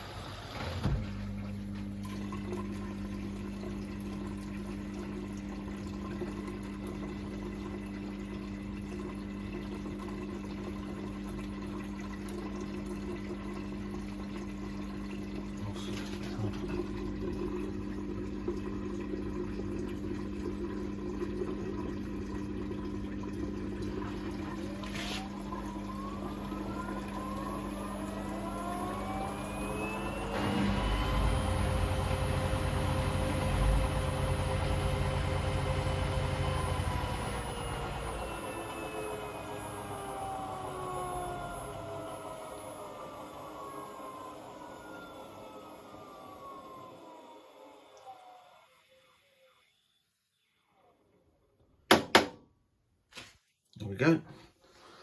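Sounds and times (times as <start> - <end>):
water moving through machine: 0.0 - 49.0
pump humming: 0.0 - 49.3
drum motor whine: 24.1 - 48.7.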